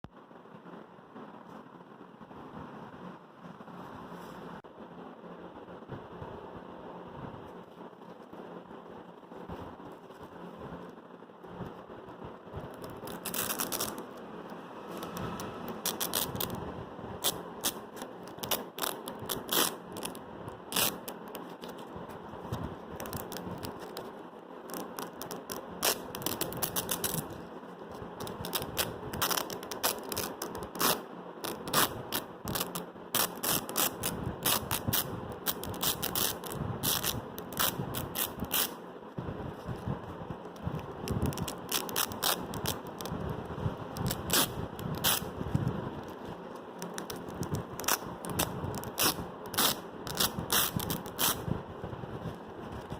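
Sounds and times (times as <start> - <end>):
velcro being pulled apart: 12.7 - 14.3, 14.9 - 16.6, 17.2 - 21.8, 23.0 - 24.1, 24.7 - 27.4, 28.2 - 38.8, 40.8 - 43.2, 44.0 - 45.3, 46.8 - 51.4.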